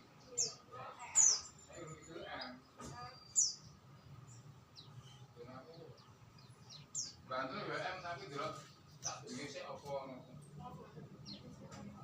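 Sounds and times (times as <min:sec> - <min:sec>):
faint voices: 0:00.0 - 0:04.0
songbird chirping: 0:00.0 - 0:12.0.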